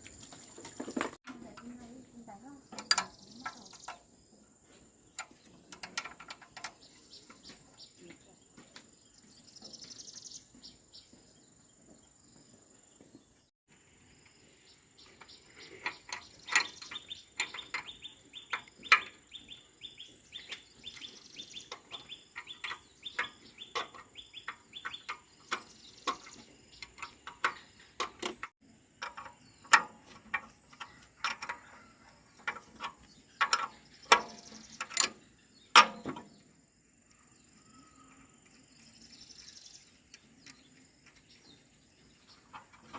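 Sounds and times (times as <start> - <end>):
sharp clicks and knocks: 2.7 - 4.1, 5.1 - 7.6, 15.2 - 19.5, 20.4 - 36.4.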